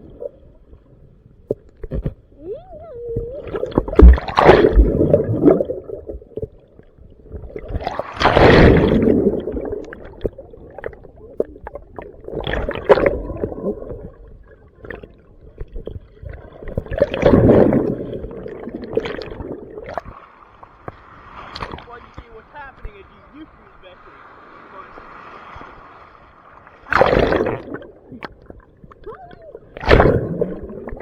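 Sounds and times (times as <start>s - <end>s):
ocean waves washing: 7.6s - 11.2s, 17.0s - 31.0s.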